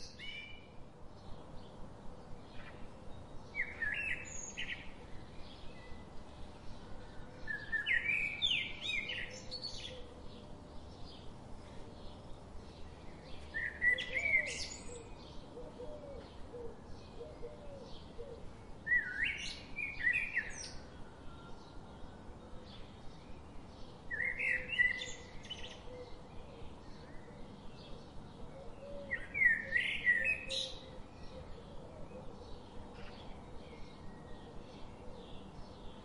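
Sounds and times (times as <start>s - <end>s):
bird whistling song: 13.6s - 15.2s, 18.9s - 20.8s, 28.9s - 30.9s.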